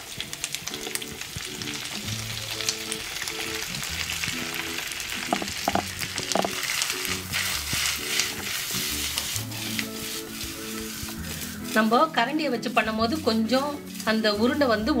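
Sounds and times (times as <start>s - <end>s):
oil sizzling in a pan: 0.0s - 15.0s
soft background music: 0.0s - 15.0s
spoon stirring and knocking pan: 5.2s - 6.7s.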